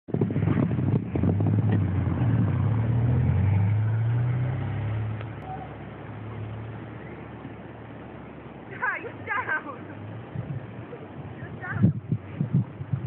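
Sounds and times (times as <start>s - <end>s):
car engine pulling away: 0.2s - 8.7s.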